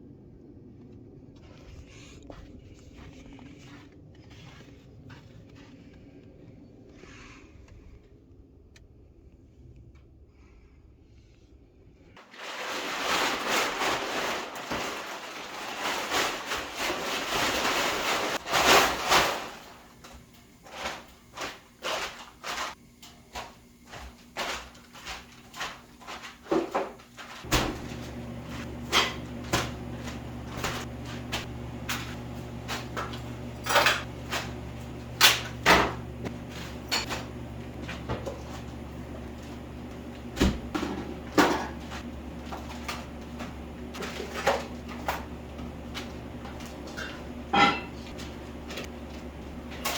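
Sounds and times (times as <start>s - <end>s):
steady low hum: 20.3s - 49.9s.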